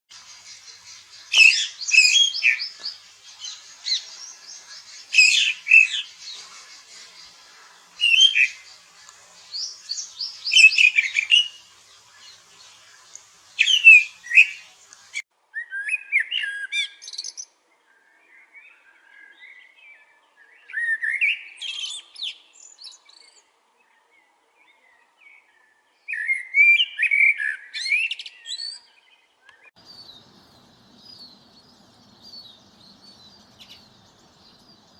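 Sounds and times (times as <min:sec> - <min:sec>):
distant bird chatter: 0:00.1 - 0:15.2, 0:29.8 - 0:34.9
songbirds warbling: 0:00.1 - 0:15.2, 0:29.8 - 0:34.9.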